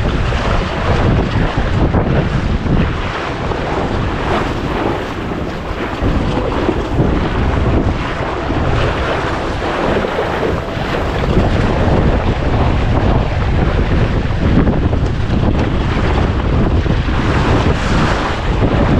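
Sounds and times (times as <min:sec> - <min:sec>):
water washing against boat: 0:00.0 - 0:18.9
wind on microphone: 0:00.0 - 0:18.9.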